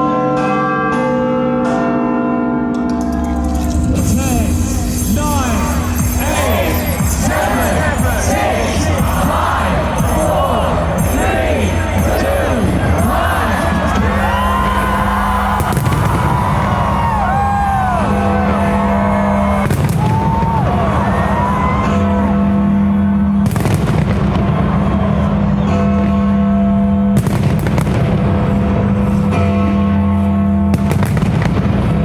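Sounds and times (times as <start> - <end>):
music with sustained notes: 0.0 - 32.0
fireworks bangs: 6.0 - 26.2, 27.2 - 29.3, 30.7 - 32.0.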